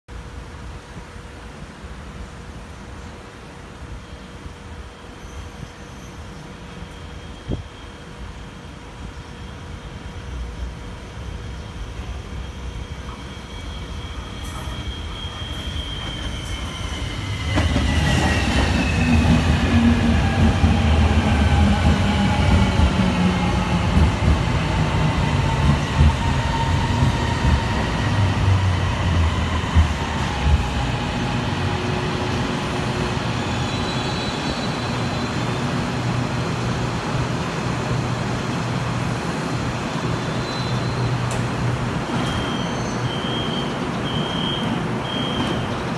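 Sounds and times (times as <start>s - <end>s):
light-rail train motor whine: 0.2s - 45.9s.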